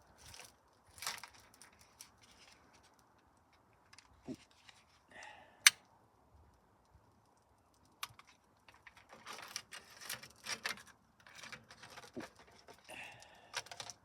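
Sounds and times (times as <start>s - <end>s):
small fire crackling: 5.1s - 8.8s.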